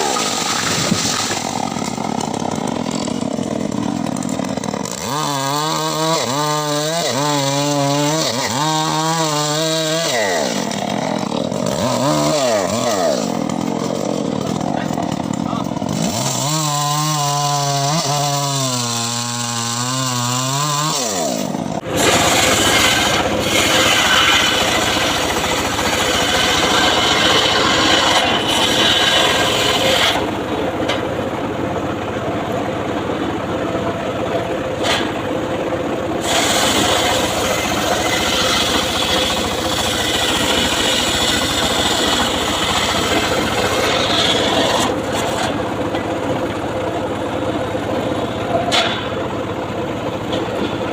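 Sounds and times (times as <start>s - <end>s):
power saw cutting wood: 0.0s - 50.9s.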